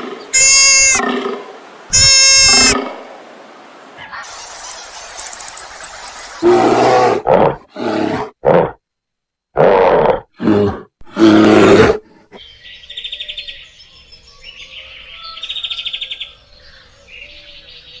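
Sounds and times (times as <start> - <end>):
animal's loud rough calls: 0.0 - 3.0
birds chirping with trills: 4.2 - 6.6.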